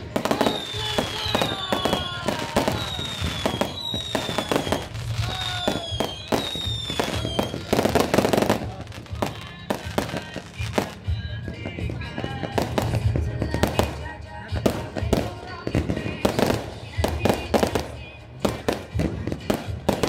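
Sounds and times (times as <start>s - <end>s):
fireworks whistles: 0.0s - 14.1s
fireworks bangs and crackles: 0.0s - 20.0s.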